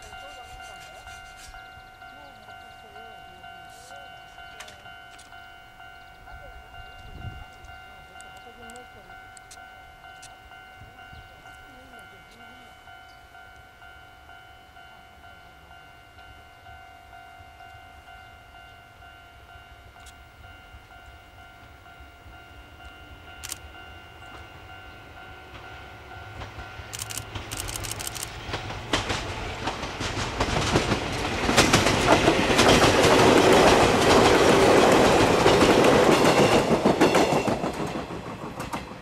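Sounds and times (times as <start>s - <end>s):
electric train passing: 0.0s - 39.0s
wheels clattering over rail joints: 28.4s - 39.0s.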